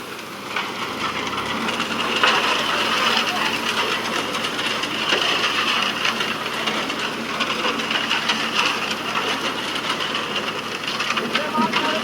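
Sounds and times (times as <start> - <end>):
concrete mixer running: 0.0 - 12.0.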